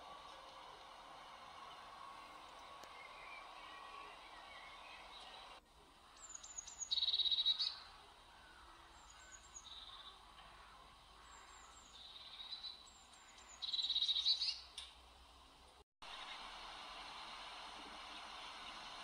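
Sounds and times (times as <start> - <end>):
songbird singing: 1.3 - 15.0.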